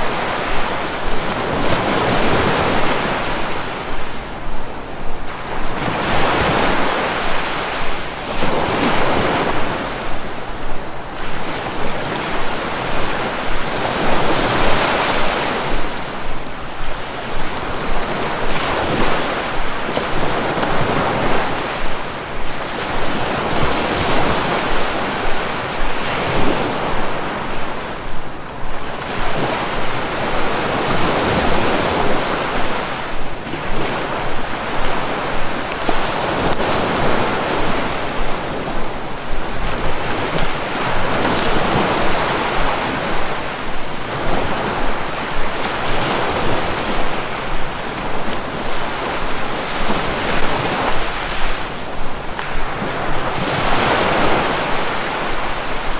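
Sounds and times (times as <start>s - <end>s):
sea waves breaking on shore: 0.0s - 55.9s
wind buffeting microphone: 0.0s - 55.9s.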